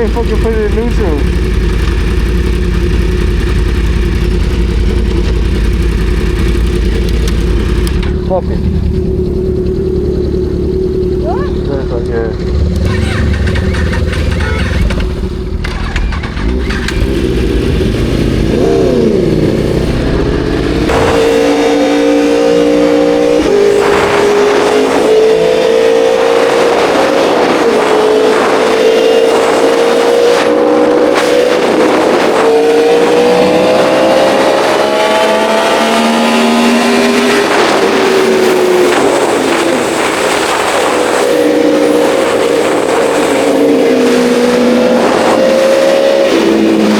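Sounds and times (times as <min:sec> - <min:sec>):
motorcycle engine revving: 0:00.0 - 0:46.9
wind rushing: 0:17.0 - 0:46.9.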